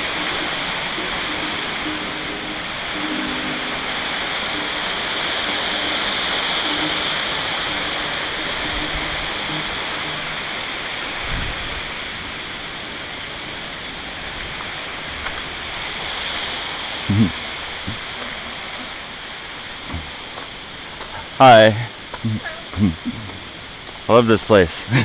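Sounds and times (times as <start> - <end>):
water rushing down small waterfall: 0.0 - 25.0.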